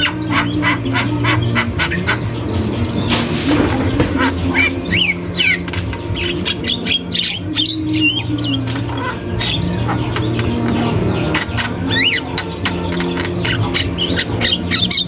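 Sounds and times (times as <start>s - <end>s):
steady low hum: 0.0s - 15.0s
bird whistles and chirps: 4.2s - 15.0s.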